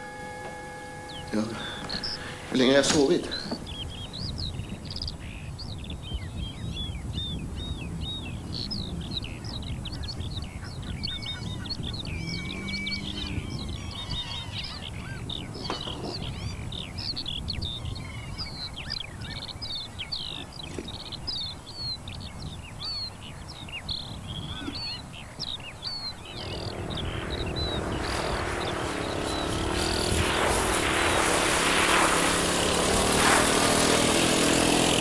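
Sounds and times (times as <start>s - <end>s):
low hum: 0.0s - 4.6s, 26.2s - 35.0s
small birds chirping and twittering: 0.0s - 35.0s
low steady rumble: 26.2s - 35.0s
hiss: 27.7s - 35.0s.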